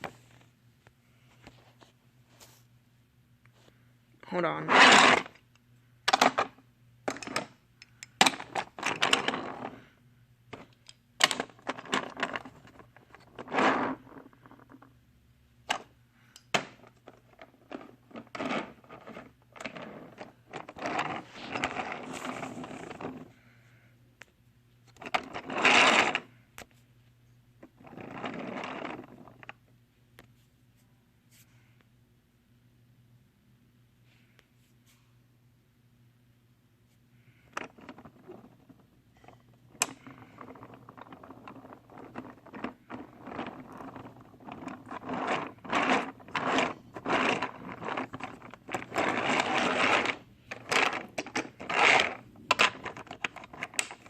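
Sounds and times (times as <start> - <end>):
faint steady hum: 0.0 - 54.0
toy trains scraping and rattling: 4.6 - 5.4, 11.6 - 14.8, 17.4 - 23.3, 25.0 - 26.3, 27.7 - 29.4, 37.6 - 54.0.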